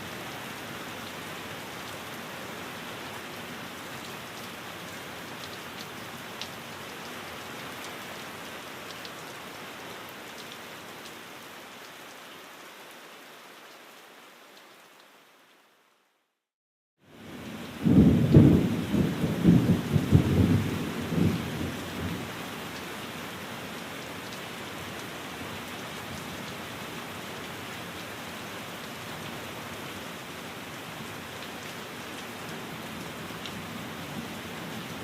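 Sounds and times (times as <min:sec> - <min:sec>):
steady rain falling: 0:00.0 - 0:16.4, 0:17.0 - 0:35.0
thunder rumbling: 0:17.8 - 0:22.2.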